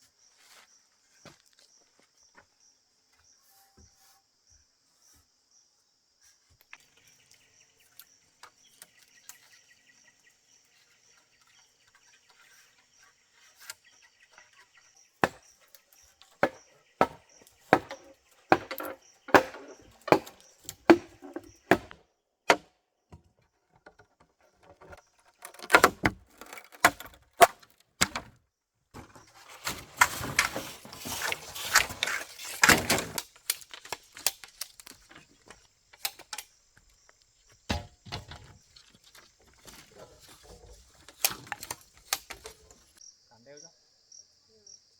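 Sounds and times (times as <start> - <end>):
chopping blows: 16.4 - 22.7
insects trilling: 30.2 - 44.9.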